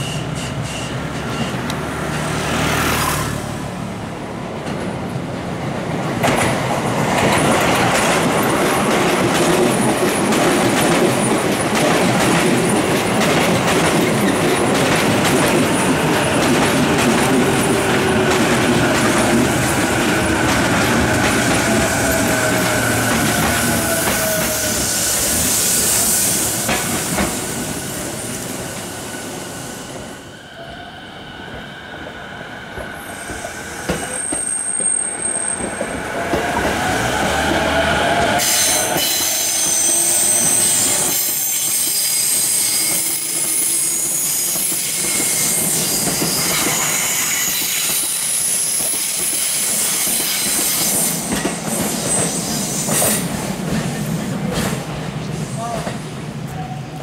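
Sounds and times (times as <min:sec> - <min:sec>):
wheels rumbling on rail: 0:00.0 - 0:57.0
high wheel squeal: 0:33.0 - 0:36.1, 0:36.7 - 0:53.2.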